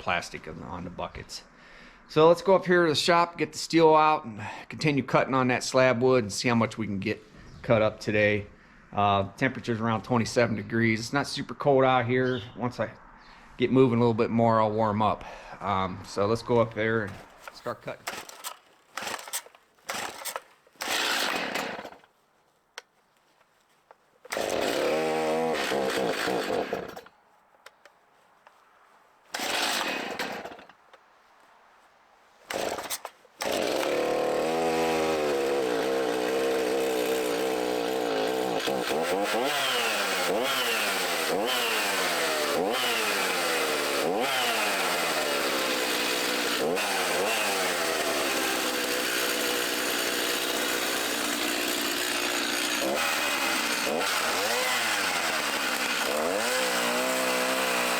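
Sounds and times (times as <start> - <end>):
chainsaw pull-starting and running: 17.0 - 22.2, 23.7 - 27.9, 29.3 - 31.0, 32.4 - 57.9.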